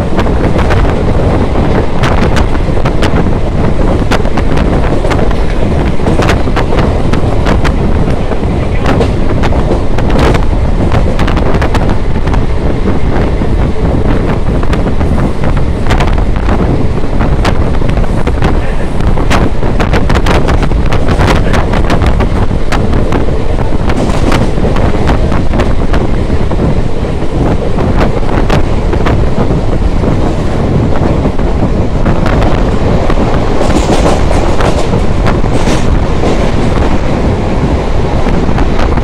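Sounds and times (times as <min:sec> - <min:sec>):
wheels rumbling on rail: 0:00.0 - 0:39.0
wind buffeting microphone: 0:00.0 - 0:39.0
sharp rail clacks: 0:01.6 - 0:12.5, 0:32.2 - 0:37.1.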